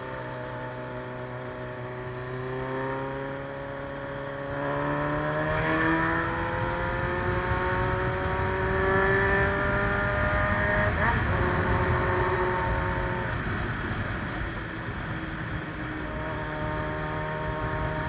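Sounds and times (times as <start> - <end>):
vehicle engine revving up: 0.7 - 13.5.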